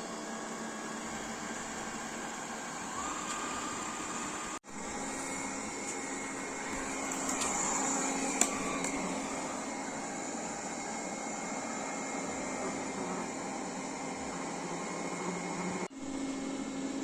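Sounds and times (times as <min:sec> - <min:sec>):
robot vacuum motor whirring: 0:01.1 - 0:11.1.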